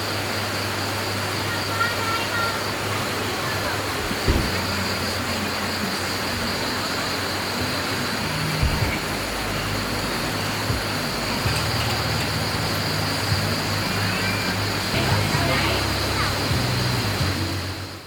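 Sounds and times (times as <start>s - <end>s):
stream water rushing: 0.0s - 18.0s
soft knocks: 4.0s - 4.9s, 8.5s - 9.1s.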